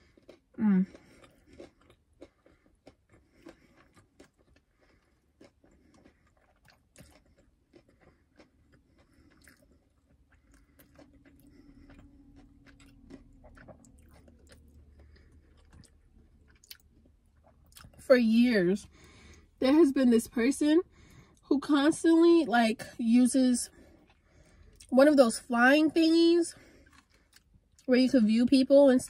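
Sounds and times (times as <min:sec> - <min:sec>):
crunchy chewing: 0:00.0 - 0:18.0, 0:26.6 - 0:27.9
faint low hum: 0:00.0 - 0:29.0.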